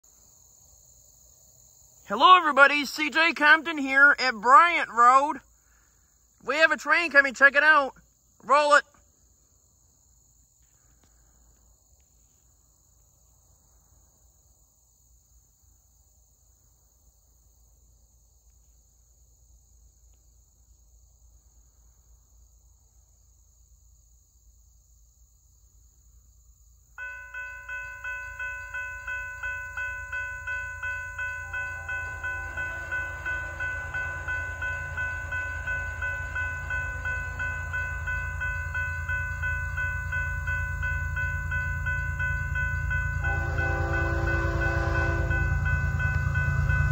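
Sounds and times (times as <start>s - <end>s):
insects buzzing: 9.0s - 46.9s
crossing warning bell ringing: 27.0s - 46.9s
freight train rumble: 27.0s - 46.9s.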